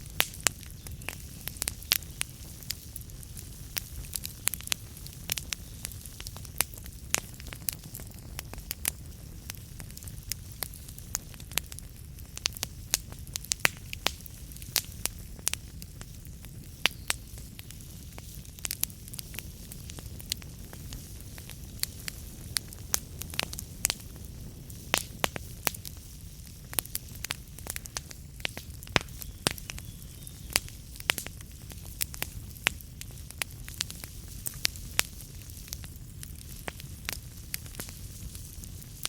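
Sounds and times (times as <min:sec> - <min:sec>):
crackles and pops of burning logs: 0:00.0 - 0:39.0
low rumble of flames: 0:00.0 - 0:39.0.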